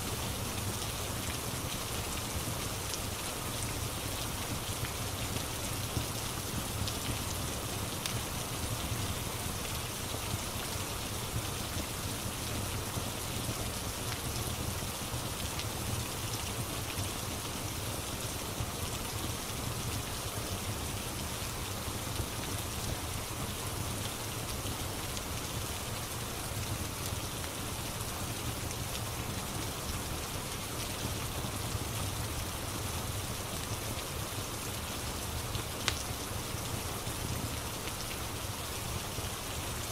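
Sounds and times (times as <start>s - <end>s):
rain falling: 0.0s - 39.9s
wood fire crackling: 35.5s - 36.1s.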